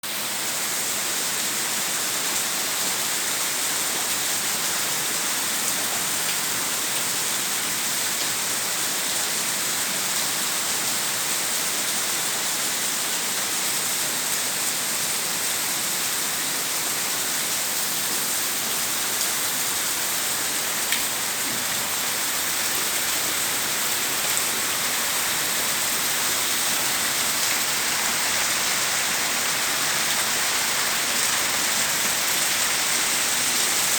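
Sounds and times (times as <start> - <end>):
heavy rain splashing: 17.5 - 33.9.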